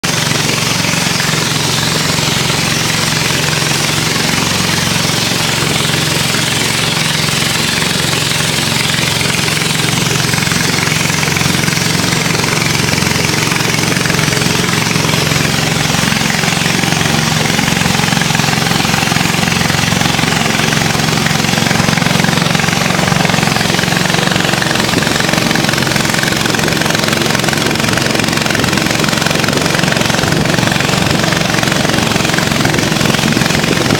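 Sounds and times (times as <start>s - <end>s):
boat engine running steadily: 0.0s - 33.9s.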